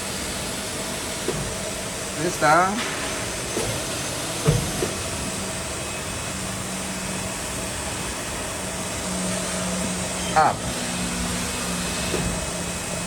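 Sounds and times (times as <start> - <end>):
machine motors humming and hissing: 0.0 - 13.0
short thump: 4.4 - 5.0.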